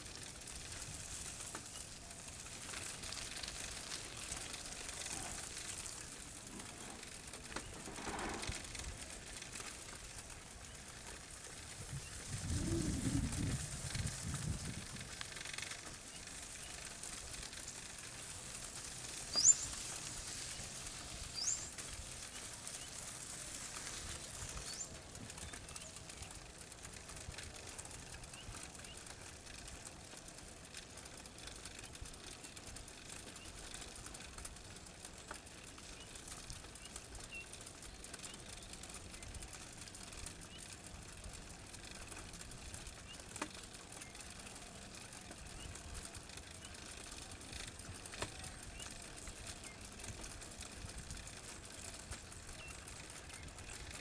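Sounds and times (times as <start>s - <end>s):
bird chirping: 19.3s - 19.8s, 21.3s - 21.7s.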